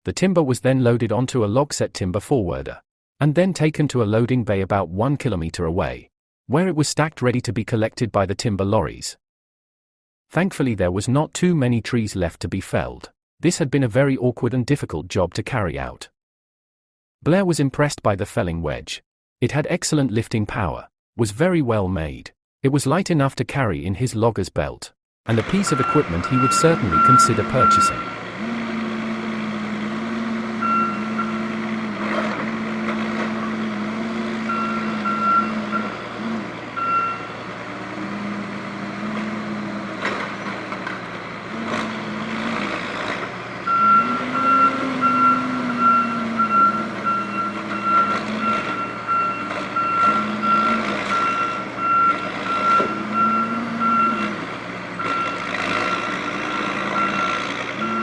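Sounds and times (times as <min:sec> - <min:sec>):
reversing alarm beeping: 0:25.3 - 0:37.5, 0:43.6 - 0:54.4, 0:55.0 - 0:58.0
heavy diesel engine revving: 0:25.3 - 0:58.0.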